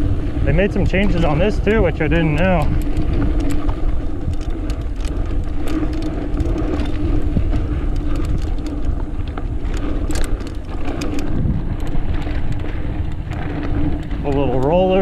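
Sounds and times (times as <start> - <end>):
bike clicks and rattles: 0.0 - 15.0
bike tyre noise on dirt: 0.0 - 15.0
wind rumble on microphone: 0.0 - 15.0.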